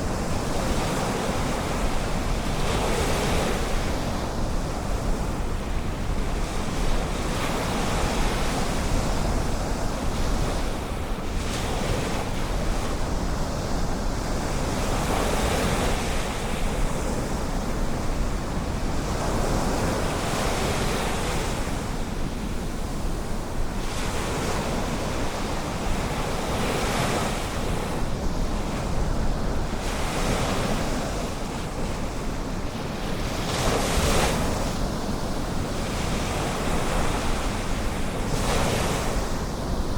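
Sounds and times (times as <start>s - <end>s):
ocean waves breaking: 13.9s - 39.9s.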